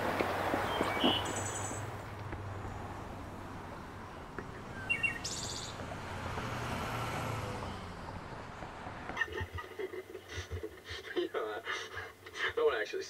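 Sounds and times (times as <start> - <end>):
small birds chirping: 0.2 - 6.5.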